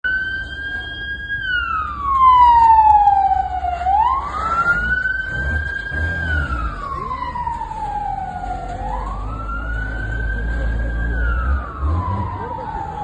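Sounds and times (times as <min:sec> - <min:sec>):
emergency vehicle siren wailing: 0:00.0 - 0:13.0.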